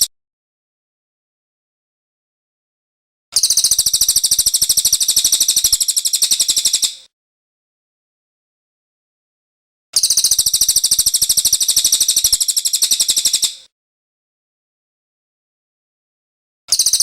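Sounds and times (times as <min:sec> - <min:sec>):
songbird trilling: 0:03.4 - 0:07.1, 0:10.0 - 0:13.7, 0:16.7 - 0:17.0.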